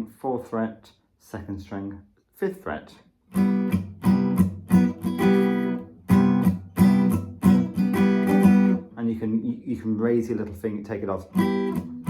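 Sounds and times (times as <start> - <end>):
acoustic guitar strumming: 3.3 - 9.0, 11.2 - 12.0.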